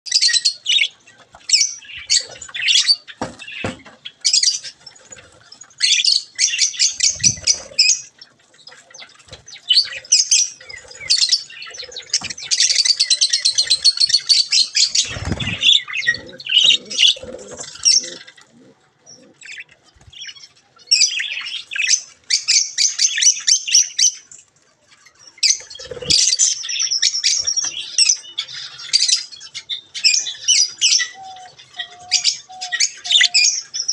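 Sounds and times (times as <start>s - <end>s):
budgerigars chattering and squawking: 0.1s - 24.2s, 25.3s - 33.9s
wing flaps: 14.9s - 15.8s.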